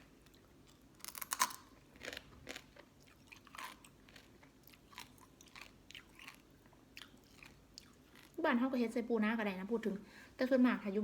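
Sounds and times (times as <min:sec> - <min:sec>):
chewing and crunching food: 0:00.0 - 0:08.5.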